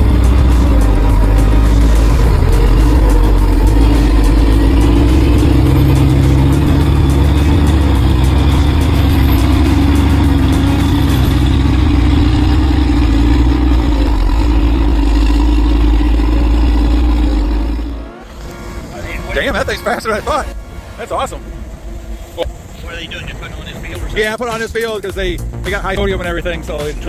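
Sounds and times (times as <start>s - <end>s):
large engine running under load: 0.0s - 18.0s.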